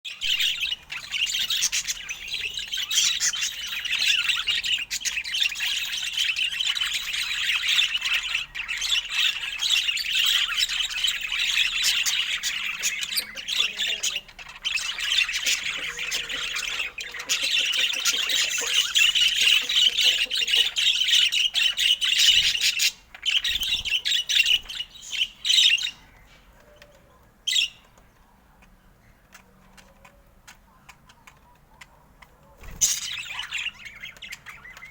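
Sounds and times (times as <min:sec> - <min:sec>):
budgerigar chattering: 0:00.3 - 0:26.0.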